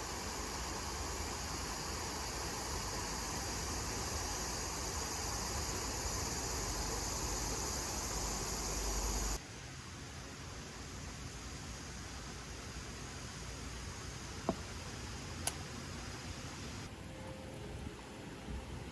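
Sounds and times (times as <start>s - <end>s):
insect chorus chirring: 0.0s - 9.4s, 11.2s - 16.9s.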